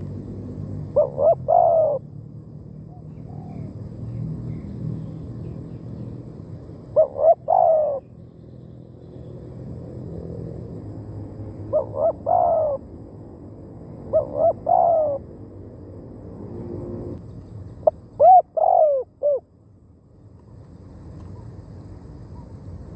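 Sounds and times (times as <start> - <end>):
dove cooing: 0.9 - 2.1, 2.9 - 3.8, 6.9 - 8.2, 11.7 - 12.8, 14.1 - 15.3, 17.8 - 19.5.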